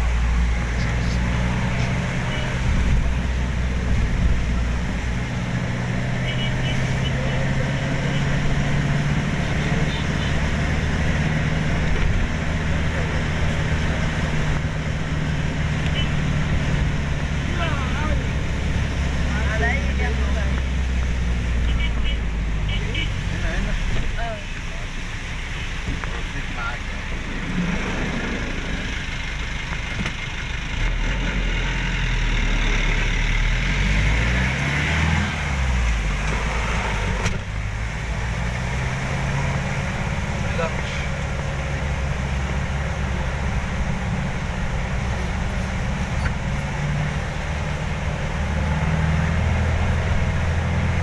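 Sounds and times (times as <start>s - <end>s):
vehicle engine humming: 0.0s - 51.0s.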